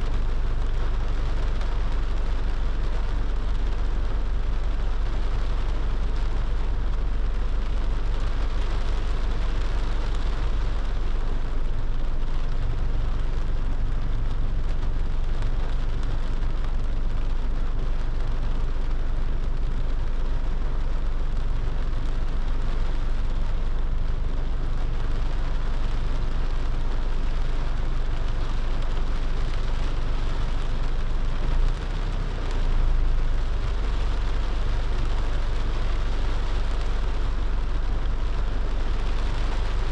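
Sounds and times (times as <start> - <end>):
car engine and tyres rumbling: 0.0 - 39.9
rain and road spray hiss: 0.0 - 39.9.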